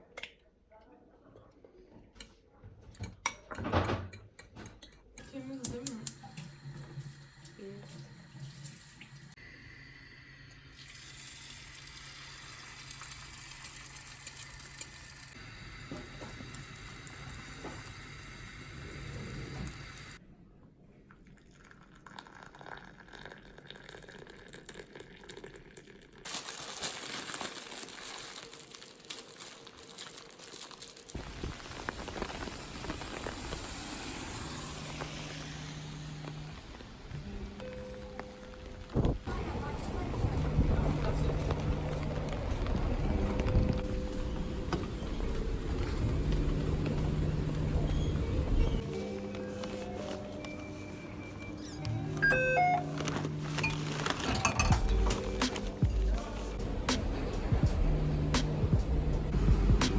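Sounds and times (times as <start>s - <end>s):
water running: 5.2s - 9.5s, 10.2s - 20.2s, 31.2s - 58.3s
crinkling and handling noise: 26.2s - 56.6s.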